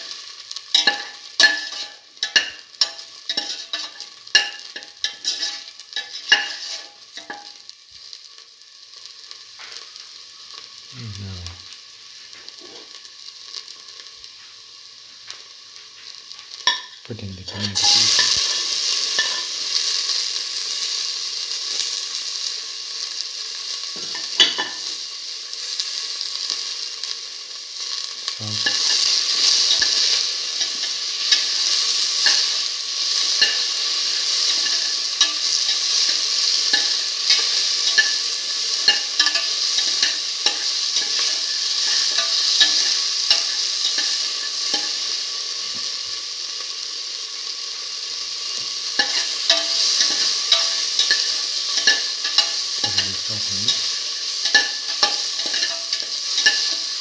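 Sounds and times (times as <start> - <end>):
food sizzling in hot oil: 0.0 - 57.0
stirring clicks and scrapes: 4.8 - 7.4.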